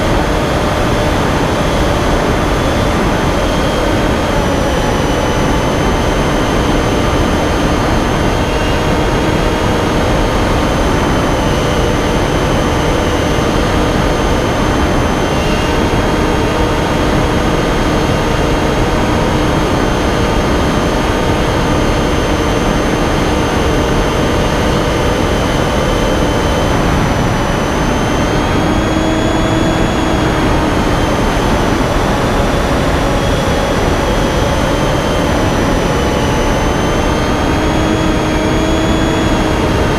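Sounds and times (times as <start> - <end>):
model plane motor whine: 0.0 - 39.9
rushing air noise: 0.0 - 39.9.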